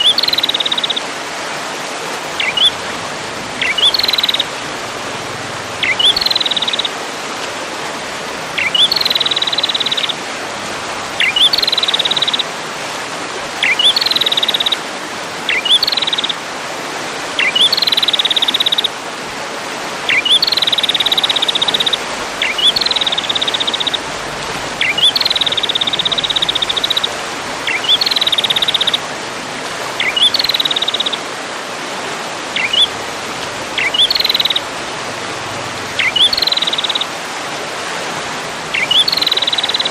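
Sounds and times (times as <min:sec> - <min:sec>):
songbird trilling: 0:00.0 - 0:01.0, 0:02.4 - 0:02.8, 0:03.6 - 0:04.6, 0:05.8 - 0:07.0, 0:08.6 - 0:10.2, 0:11.2 - 0:12.4, 0:13.6 - 0:14.8, 0:15.5 - 0:16.4, 0:17.4 - 0:18.9, 0:20.1 - 0:24.1, 0:24.7 - 0:29.1, 0:30.0 - 0:31.2, 0:32.5 - 0:33.0, 0:33.7 - 0:34.7, 0:35.9 - 0:37.1, 0:38.7 - 0:39.9.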